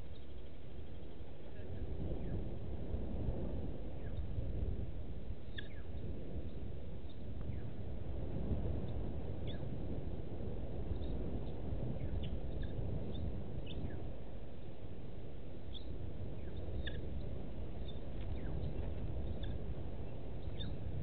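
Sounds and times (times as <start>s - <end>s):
steady low rumble: 0.0s - 21.0s
high bird chirps: 15.7s - 20.8s.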